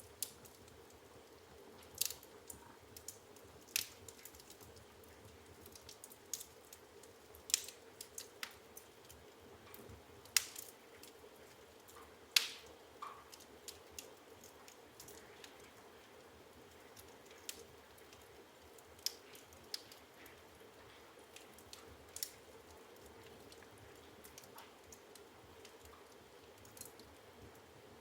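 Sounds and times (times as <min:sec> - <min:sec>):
faint hiss of flames: 0:00.0 - 0:28.0
firewood crackling and popping: 0:00.0 - 0:28.0.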